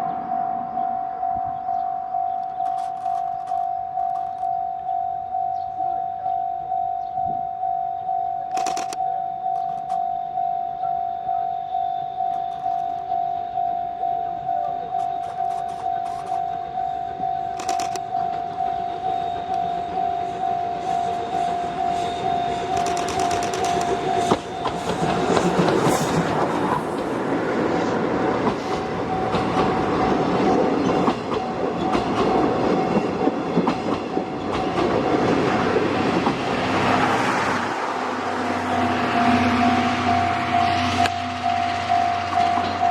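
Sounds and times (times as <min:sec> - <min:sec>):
level-crossing alarm ringing: 0:00.0 - 0:36.2, 0:37.8 - 0:42.9
steam train passing: 0:14.4 - 0:42.9
train wheels clattering over rail joints: 0:20.8 - 0:37.2.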